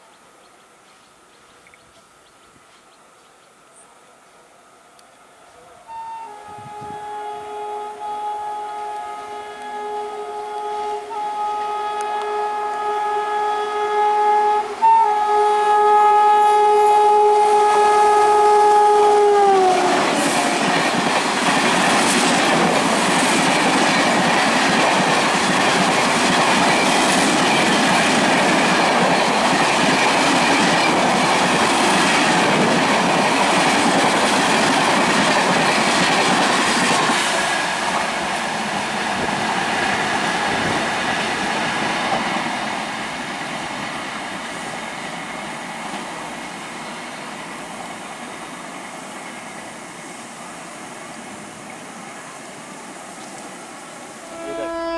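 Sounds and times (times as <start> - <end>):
train horn blast: 5.7 - 21.0, 54.2 - 54.9
train coaches rushing past: 18.8 - 54.9
train wheel clatter: 20.0 - 42.6.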